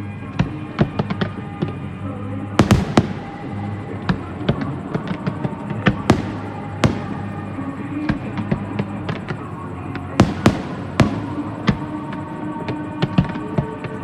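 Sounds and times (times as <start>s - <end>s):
fireworks bursting: 0.0s - 14.0s
music with held notes: 0.0s - 14.0s.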